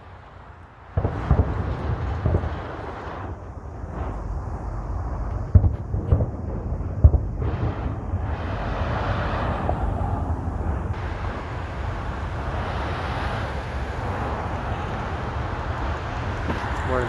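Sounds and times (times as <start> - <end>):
passing traffic rushing: 0.0 - 17.0
firework shell bursting: 0.9 - 13.4.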